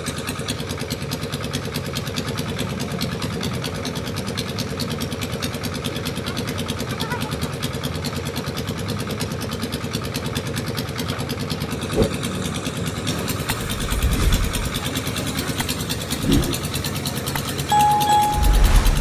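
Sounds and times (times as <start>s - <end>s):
engine idling: 0.0s - 19.0s
low thumps: 18.2s - 19.0s.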